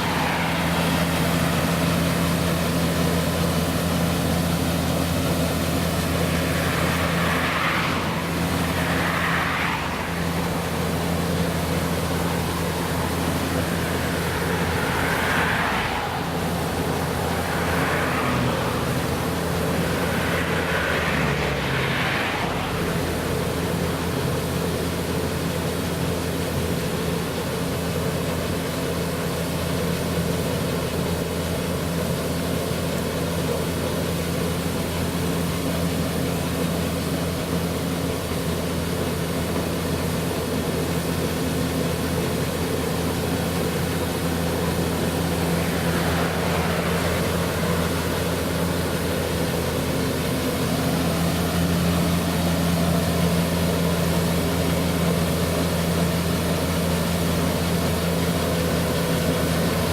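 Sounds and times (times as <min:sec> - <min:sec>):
farm machine engine running: 0:00.0 - 0:09.2, 0:09.8 - 0:21.4, 0:22.7 - 0:59.9.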